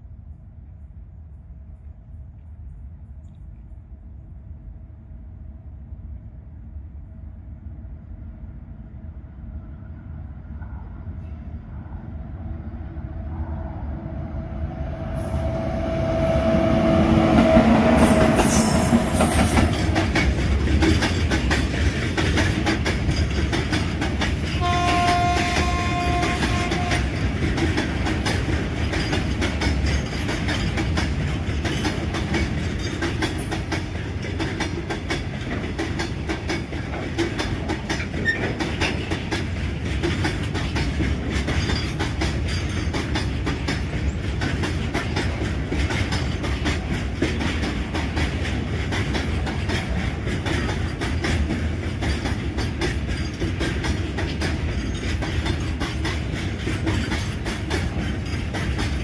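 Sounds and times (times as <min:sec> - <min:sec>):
train wheels rumbling on rail: 0:00.0 - 0:59.0
clickety-clack over rail joints: 0:16.1 - 0:59.0.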